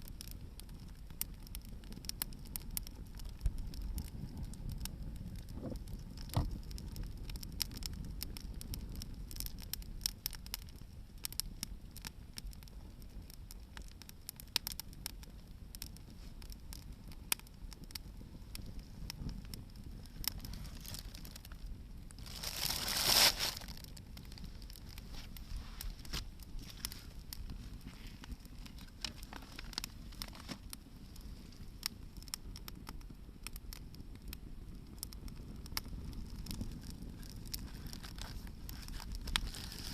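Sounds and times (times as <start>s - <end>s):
bonfire crackling and popping: 0.0s - 39.9s.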